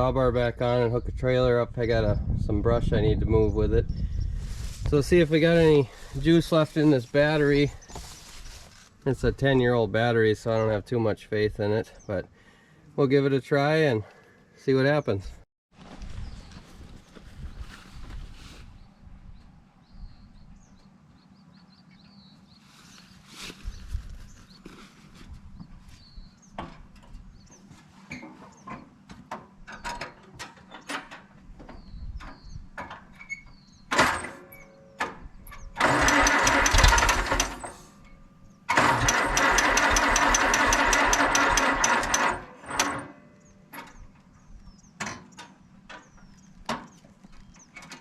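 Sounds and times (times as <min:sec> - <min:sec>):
tractor starter cranking: 0:33.9 - 0:44.0
engine pop: 0:35.0 - 0:37.8, 0:38.7 - 0:44.0.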